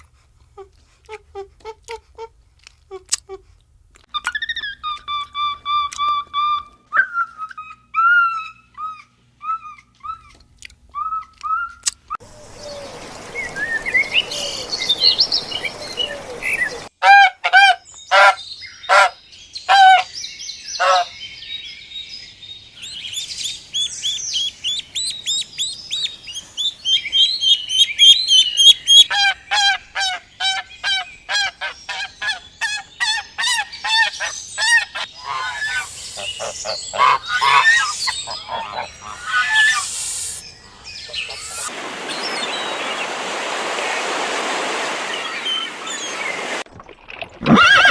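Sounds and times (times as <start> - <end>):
birds chirping: 7.2 - 16.9, 17.8 - 43.4, 44.9 - 46.7
birds honking: 29.0 - 39.9.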